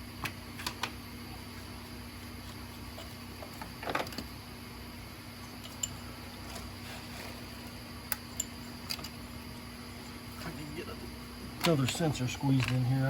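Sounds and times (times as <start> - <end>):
steady background hum: 0.0 - 13.0
hand tools clicking and clattering: 11.6 - 13.0.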